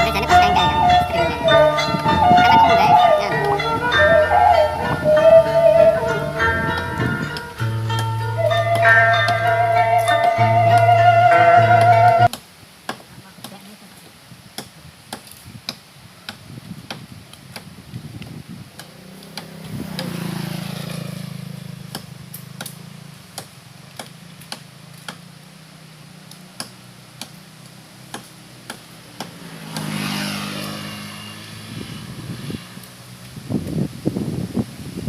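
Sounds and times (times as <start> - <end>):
regular ticking: 0.0 - 12.4
vehicles passing by: 0.0 - 35.0.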